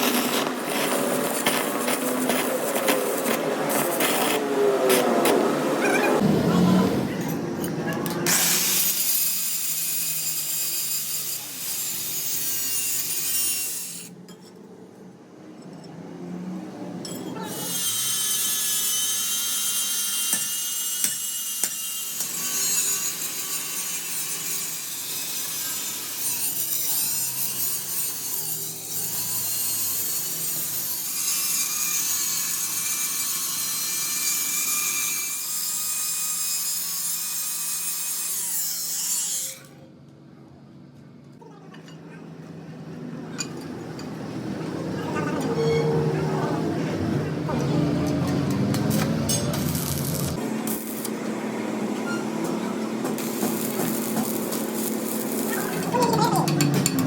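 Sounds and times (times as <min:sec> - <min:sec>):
power tool whining on steel: 0:47.6 - 0:56.1.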